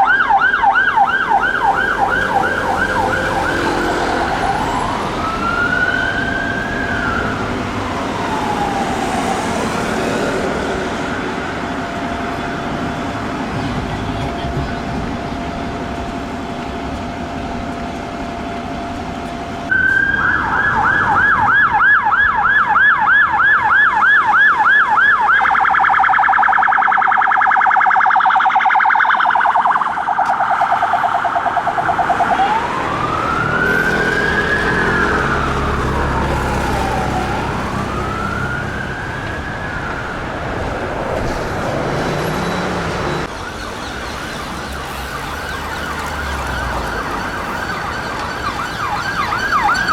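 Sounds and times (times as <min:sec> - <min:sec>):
police siren yelp and wail: 0:00.0 - 0:49.9
steady siren tone: 0:00.0 - 0:49.9.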